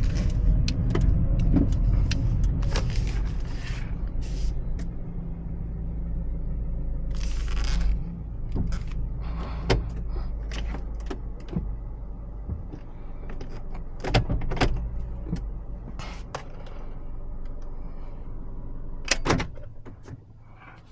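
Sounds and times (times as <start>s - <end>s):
clicks and knocks of car controls: 0.0s - 3.6s, 8.5s - 16.7s, 19.1s - 20.3s
car engine running at low speed: 0.0s - 20.9s.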